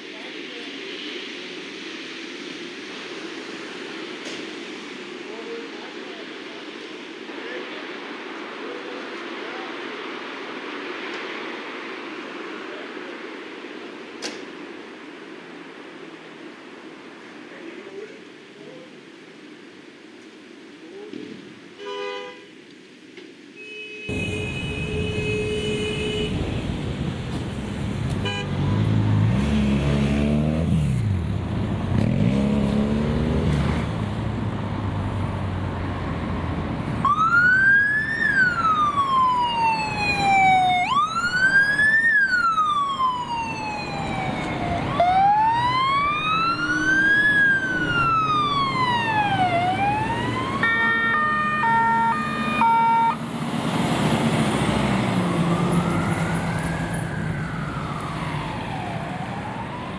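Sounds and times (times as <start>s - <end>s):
vehicle engines accelerating: 26.3s - 59.9s
emergency siren wailing: 36.3s - 53.3s, 54.4s - 59.9s.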